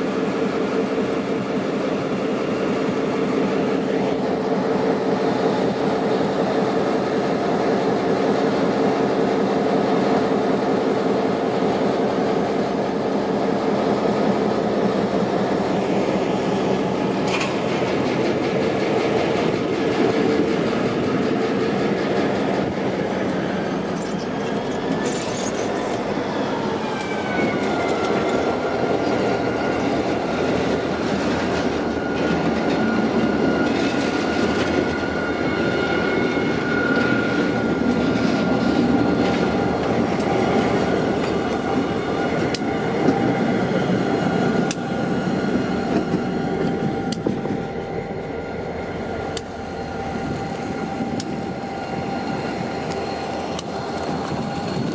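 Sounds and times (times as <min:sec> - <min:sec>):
diesel locomotives running: 0:00.0 - 0:54.9.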